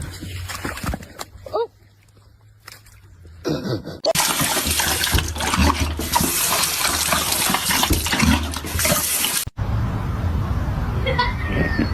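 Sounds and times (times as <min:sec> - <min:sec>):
rushing splashing water: 0:04.1 - 0:09.6.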